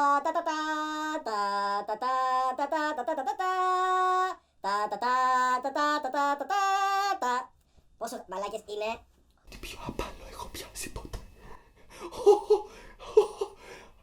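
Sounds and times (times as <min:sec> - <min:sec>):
person singing unaccompanied: 0:00.0 - 0:07.5.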